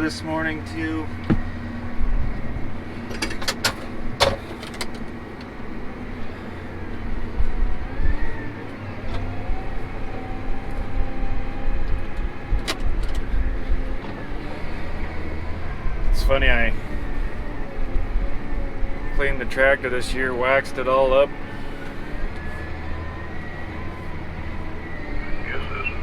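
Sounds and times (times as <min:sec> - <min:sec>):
tractor engine rumble: 0:00.0 - 0:26.0.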